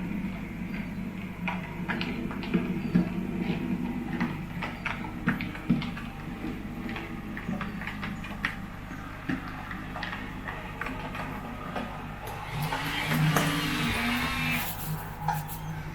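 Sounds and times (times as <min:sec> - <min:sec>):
wheels clicking on rails: 0:00.0 - 0:15.9
model train motor hum: 0:12.0 - 0:15.6.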